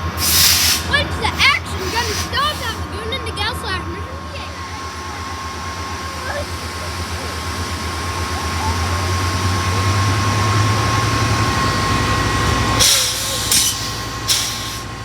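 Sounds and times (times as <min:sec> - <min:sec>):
diesel train engine throbbing: 0:00.0 - 0:15.0
short hissing bursts: 0:00.2 - 0:02.8, 0:12.8 - 0:14.9.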